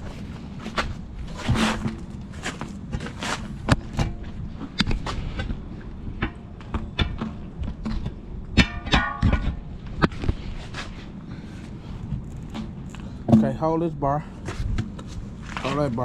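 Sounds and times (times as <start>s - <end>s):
metal clanks and knocks: 1.4s - 10.2s.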